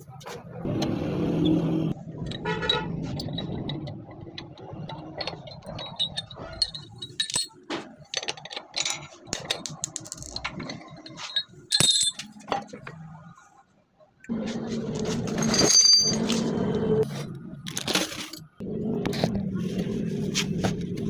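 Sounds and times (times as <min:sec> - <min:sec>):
metallic clinking and clattering: 0:02.1 - 0:13.3, 0:15.1 - 0:16.5.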